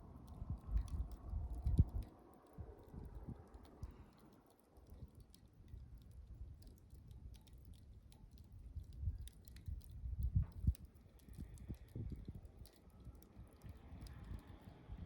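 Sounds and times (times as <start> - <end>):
campfire crackling and popping: 0.0 - 14.5
low fire rumble: 0.0 - 15.0.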